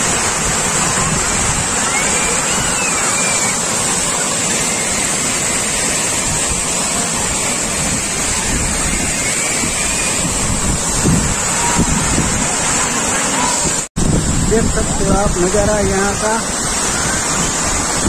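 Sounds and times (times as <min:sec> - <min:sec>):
water rushing over dam: 0:00.0 - 0:18.0
wind buffeting microphone: 0:06.2 - 0:12.9, 0:13.6 - 0:18.0.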